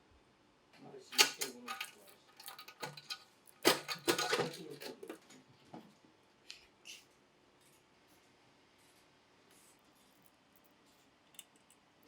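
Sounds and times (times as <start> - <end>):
metal tools clinking: 1.1 - 5.4.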